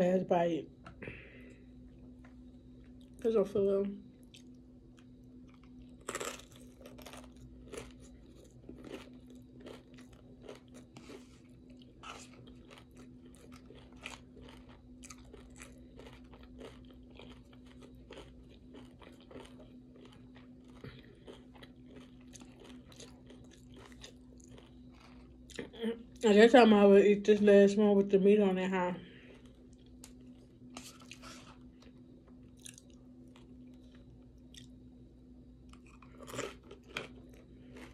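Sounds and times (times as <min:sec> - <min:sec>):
faint steady hum: 0:00.0 - 0:37.9
chewing tortilla chips: 0:04.2 - 0:26.3, 0:29.1 - 0:35.0, 0:35.6 - 0:37.9.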